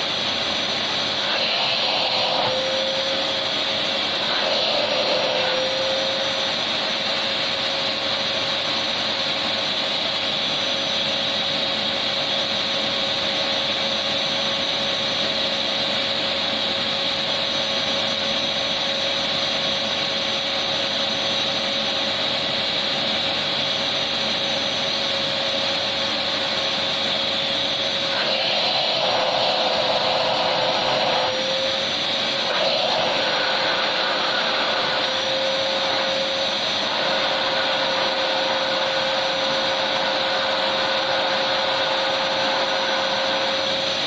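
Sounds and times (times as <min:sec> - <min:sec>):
vacuum cleaner running: 0:00.0 - 0:44.0.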